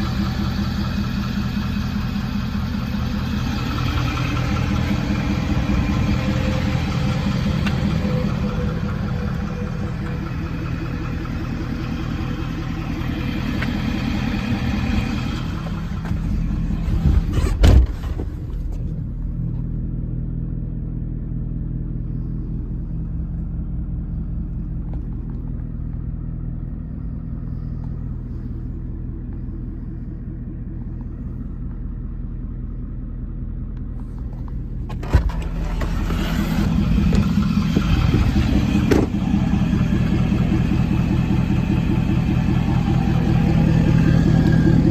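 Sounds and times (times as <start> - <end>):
diesel engine idling: 0.0 - 44.9
loud thump: 17.0 - 18.4, 38.7 - 39.3.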